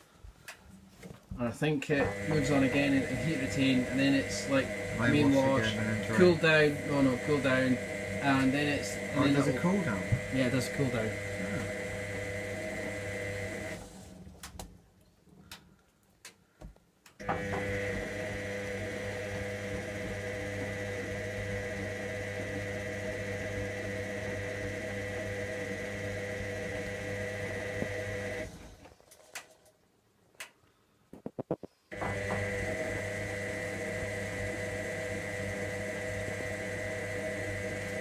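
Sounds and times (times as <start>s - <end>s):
washing machine drum motor humming: 2.0s - 14.2s, 17.2s - 28.8s, 31.9s - 38.0s.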